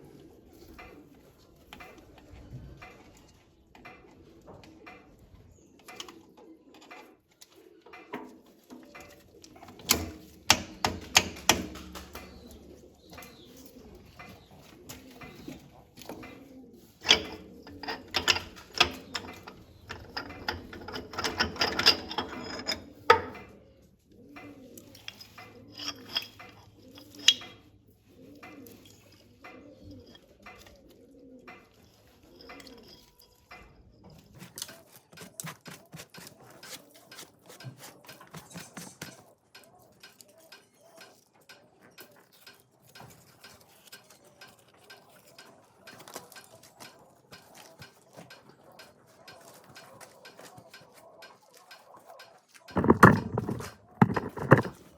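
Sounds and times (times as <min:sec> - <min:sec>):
bird cooing: 0:00.0 - 0:54.9
sharp clicks and knocks: 0:07.9 - 0:23.6, 0:32.4 - 0:54.9.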